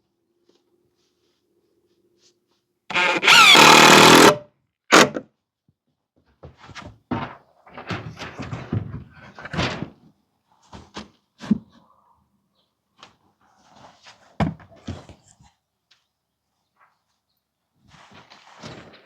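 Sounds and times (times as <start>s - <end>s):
power drill driving a screw: 2.9s - 5.1s.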